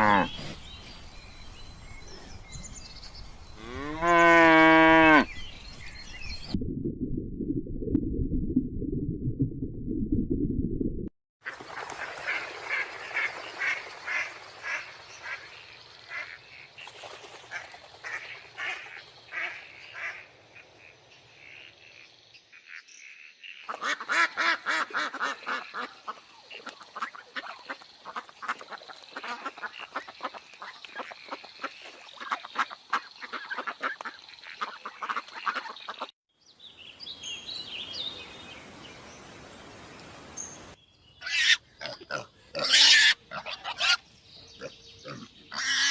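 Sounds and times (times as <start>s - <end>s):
ducks quacking: 23.7s - 36.1s.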